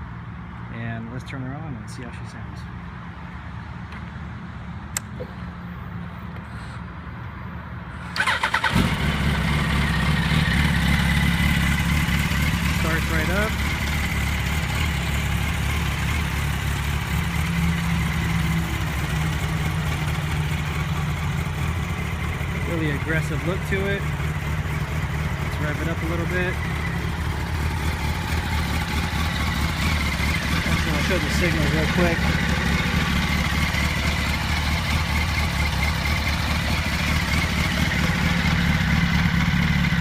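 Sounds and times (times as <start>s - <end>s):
motorcycle engine idling: 8.2s - 40.0s.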